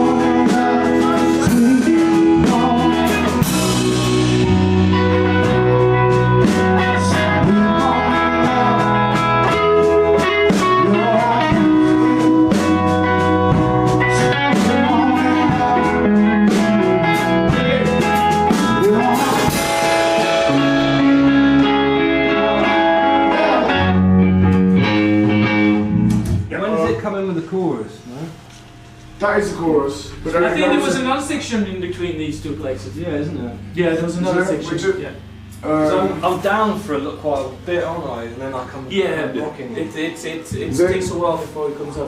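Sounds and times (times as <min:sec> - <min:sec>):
electric guitar: 0:00.0 - 0:27.4, 0:28.0 - 0:38.9
bass line: 0:00.0 - 0:41.6
drum kit: 0:00.0 - 0:42.0
cymbal crash: 0:27.9 - 0:37.2.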